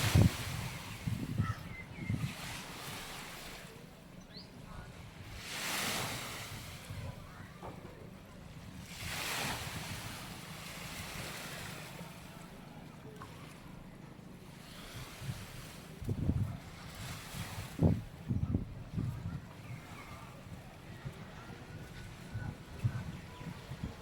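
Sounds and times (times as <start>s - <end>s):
wind rumbling on microphone: 0.0s - 3.7s, 4.7s - 11.7s, 14.8s - 24.0s
small waves breaking on beach: 0.0s - 7.7s, 8.7s - 12.6s, 14.4s - 18.2s.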